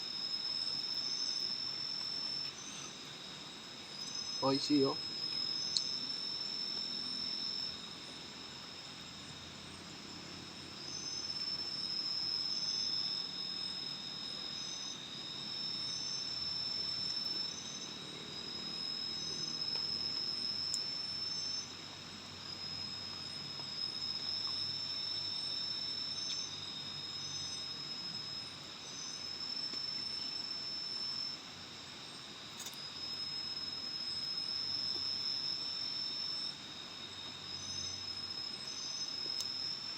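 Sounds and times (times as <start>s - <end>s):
insect chirp: 0.0s - 39.9s
insects buzzing: 0.0s - 39.9s.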